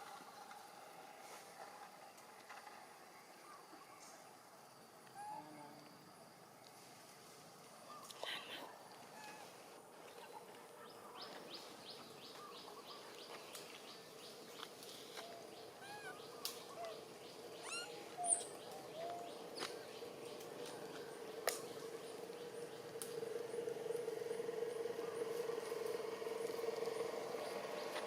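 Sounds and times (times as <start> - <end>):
animal chirps: 15.2 - 19.7
squeaky arched animal calls: 15.8 - 16.9, 17.6 - 19.3.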